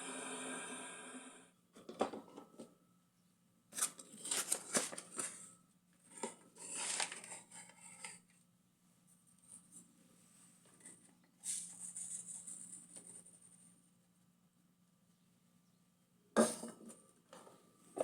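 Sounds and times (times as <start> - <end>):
handling rustles scrapes and clicks: 3.8 - 5.5, 6.1 - 8.3.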